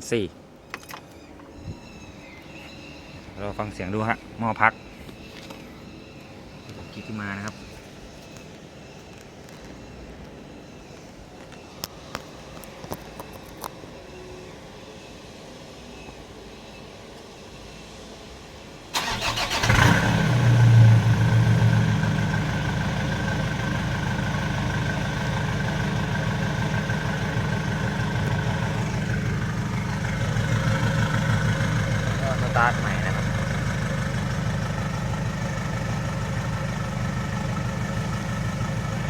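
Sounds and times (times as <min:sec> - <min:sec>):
diesel engine starting and idling: 0:18.9 - 0:39.0.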